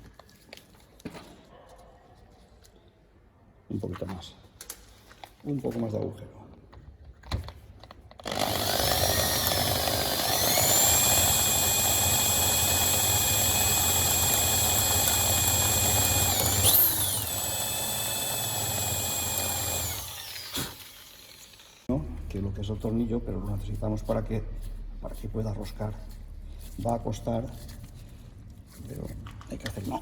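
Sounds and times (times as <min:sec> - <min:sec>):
electric drill whining: 0:08.2 - 0:21.9.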